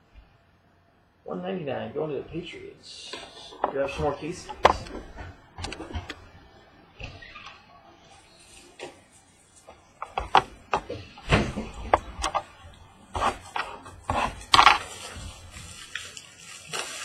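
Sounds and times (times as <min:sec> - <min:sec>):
packaging rustling: 0:13.2 - 0:17.0.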